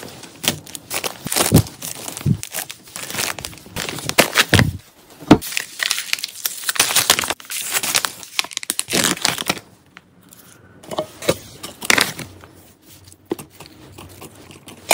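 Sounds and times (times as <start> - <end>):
plastic packaging crinkling: 0.0 - 4.8, 5.4 - 10.0.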